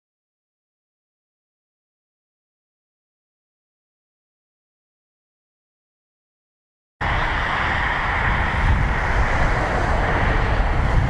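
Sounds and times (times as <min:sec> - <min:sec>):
jet engines rumbling: 0:07.0 - 0:11.0
wind on microphone: 0:07.0 - 0:11.0.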